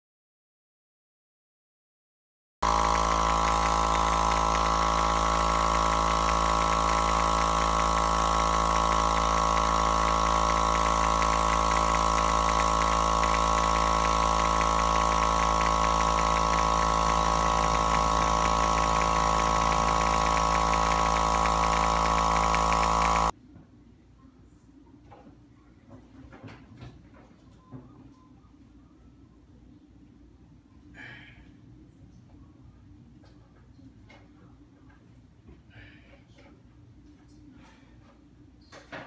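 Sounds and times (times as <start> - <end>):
air compressor running: 2.6 - 23.3.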